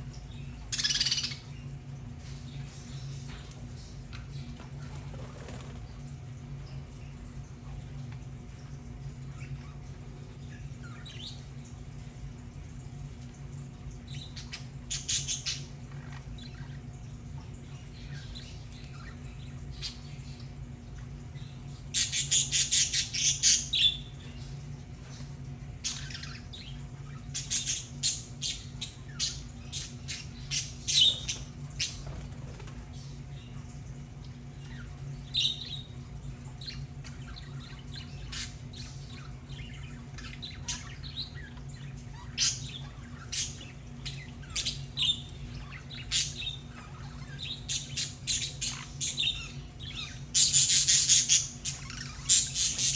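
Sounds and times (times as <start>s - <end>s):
steady low hum: 0.0s - 52.9s
budgerigars chattering and squawking: 0.5s - 1.7s, 25.8s - 33.5s, 36.6s - 52.9s.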